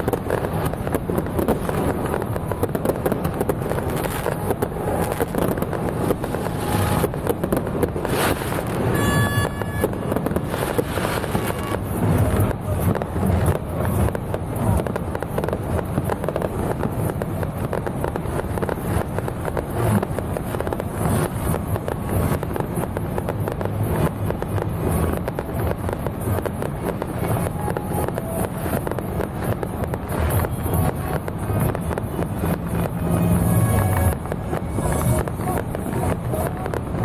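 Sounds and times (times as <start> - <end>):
fireworks crackling and popping: 0.0 - 37.0.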